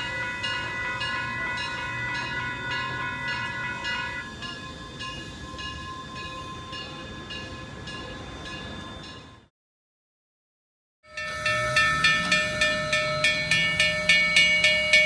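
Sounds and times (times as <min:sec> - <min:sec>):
steam locomotive whistle: 0:00.0 - 0:06.7, 0:11.1 - 0:15.0
locomotive bell ringing: 0:00.0 - 0:09.5, 0:11.1 - 0:15.0
low rumble of train: 0:00.0 - 0:09.5, 0:11.1 - 0:15.0.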